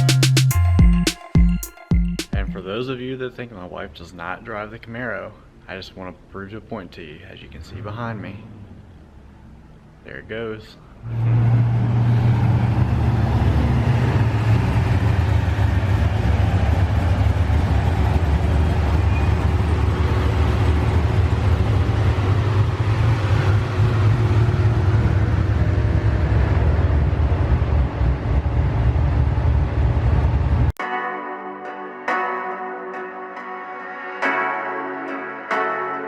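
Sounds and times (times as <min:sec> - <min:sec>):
road noise: 0:03.4 - 0:30.8
car engine rumbling: 0:07.4 - 0:30.8.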